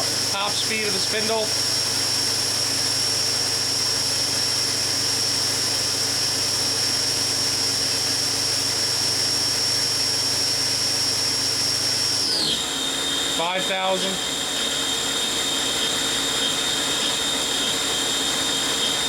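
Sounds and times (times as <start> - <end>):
machine spindle whine: 0.0 - 19.0.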